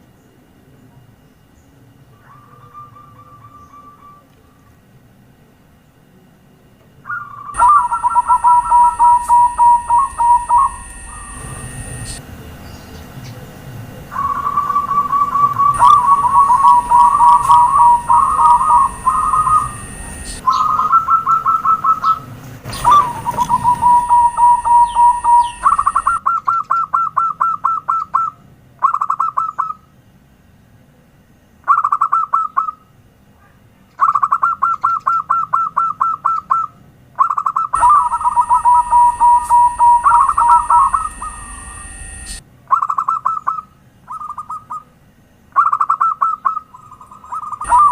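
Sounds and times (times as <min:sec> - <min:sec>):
dove cooing: 0:02.1 - 0:04.7, 0:07.0 - 0:12.2, 0:14.1 - 0:29.8, 0:34.0 - 0:44.9, 0:45.6 - 0:47.9.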